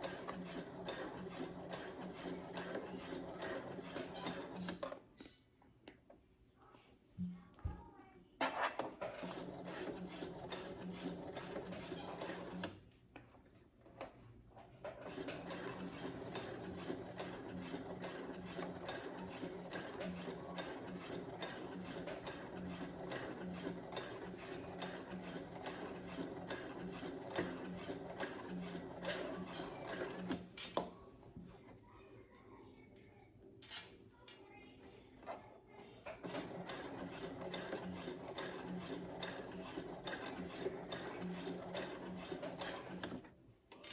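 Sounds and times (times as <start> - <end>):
sewing machine stitching: 0.0 - 5.0, 8.8 - 12.8, 14.8 - 30.9, 36.1 - 43.9.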